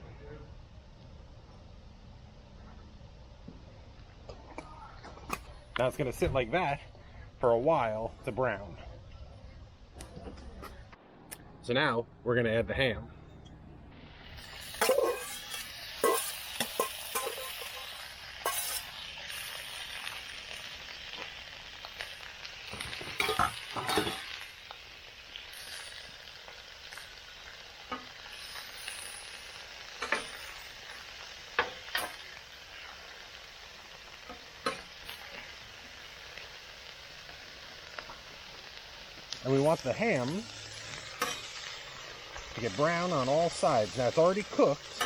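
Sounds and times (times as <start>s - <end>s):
potatoes frying: 13.9s - 45.0s
meat sizzling on a griddle: 14.0s - 45.0s.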